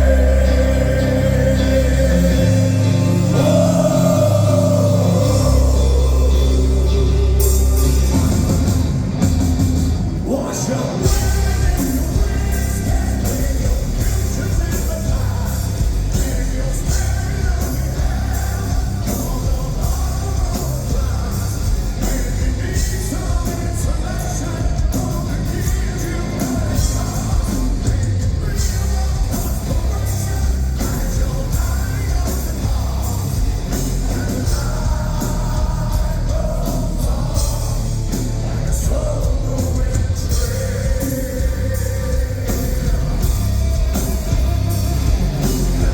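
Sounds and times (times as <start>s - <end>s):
person singing: 0.0s - 9.0s
heavy metal band playing live: 0.0s - 45.9s.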